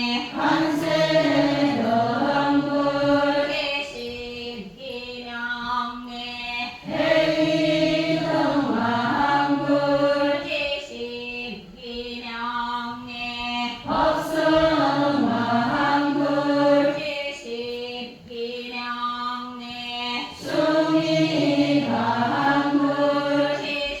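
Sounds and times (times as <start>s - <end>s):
many voices chanting: 0.0s - 3.9s, 6.8s - 10.8s, 13.7s - 18.0s, 20.2s - 24.0s.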